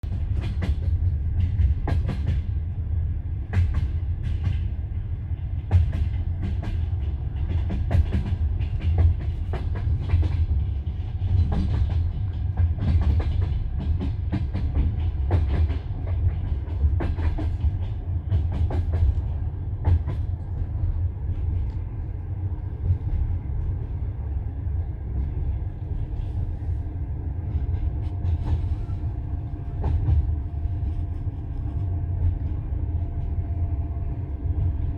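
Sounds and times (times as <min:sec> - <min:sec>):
train carriage rumbling: 0:00.0 - 0:34.9.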